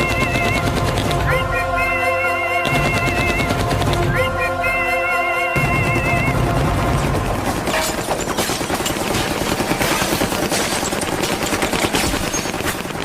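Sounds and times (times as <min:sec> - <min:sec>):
rapid sharp cracks and bangs: 0:00.0 - 0:01.3, 0:02.6 - 0:04.1, 0:05.6 - 0:13.0.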